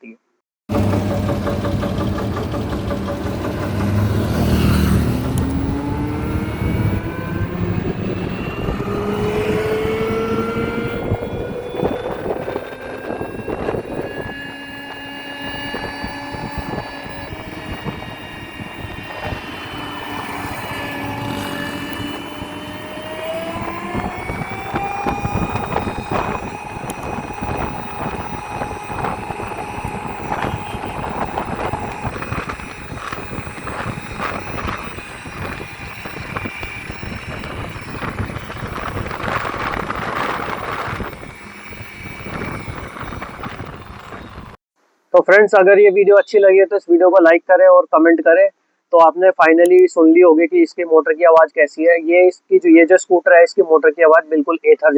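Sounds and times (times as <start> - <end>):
electric scooter motor whining: 0.7 - 44.6
rushing road noise: 0.7 - 44.6.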